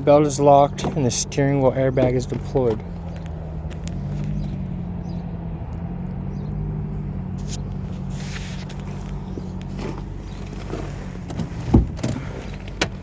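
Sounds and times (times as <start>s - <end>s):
engine droning: 0.0s - 13.0s
short rustle: 7.4s - 12.8s.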